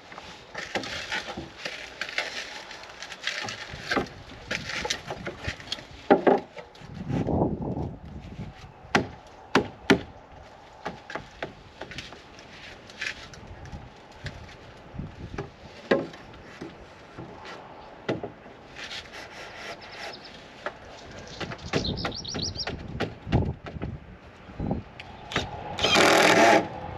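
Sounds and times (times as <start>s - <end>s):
wood scraping on wood: 0.0s - 7.3s, 10.4s - 21.9s, 25.1s - 26.9s
wooden knocks: 21.4s - 23.9s.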